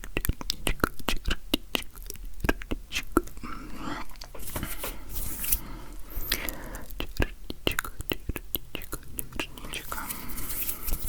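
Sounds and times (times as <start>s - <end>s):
hands rustling and rubbing: 4.2s - 6.8s, 9.5s - 11.0s.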